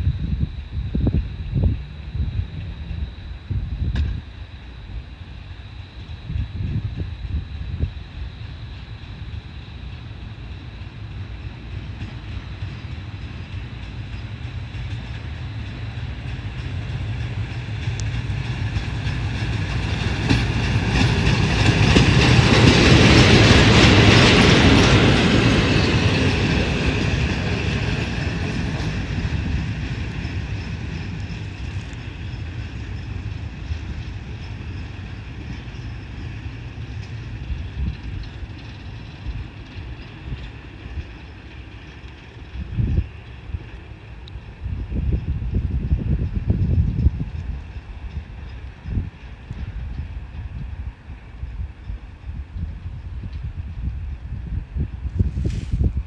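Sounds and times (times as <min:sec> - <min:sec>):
rail trolley running on track: 0:00.0 - 0:56.0.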